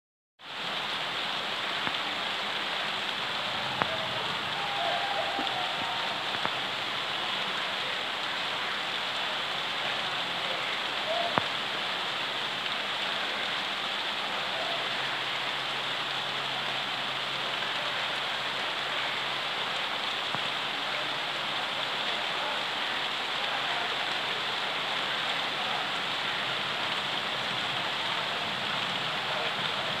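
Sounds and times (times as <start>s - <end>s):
steady rain falling: 0.4s - 30.0s.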